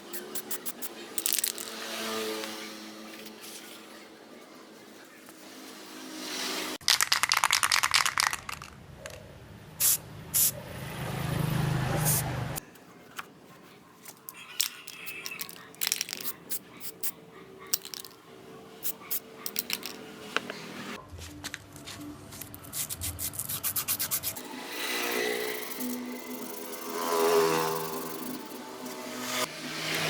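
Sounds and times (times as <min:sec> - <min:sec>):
metal parts clinking and scraping: 0:00.0 - 0:02.6, 0:14.0 - 0:18.2, 0:18.8 - 0:20.5.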